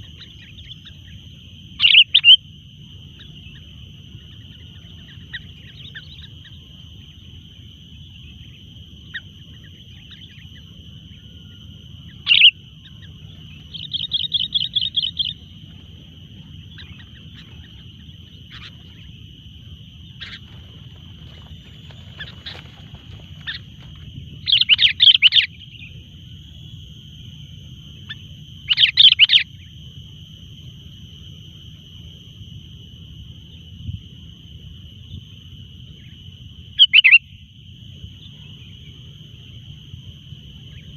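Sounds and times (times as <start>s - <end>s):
birds calling: 1.8s - 2.4s, 12.0s - 26.0s, 28.1s - 29.5s, 36.8s - 37.2s.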